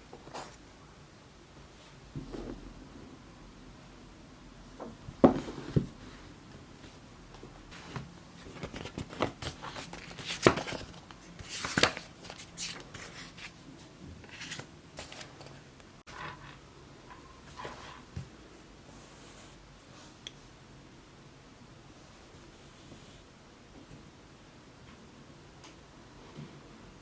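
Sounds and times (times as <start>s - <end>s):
paper-like rustling and scraping: 7.7s - 13.6s, 14.2s - 18.3s.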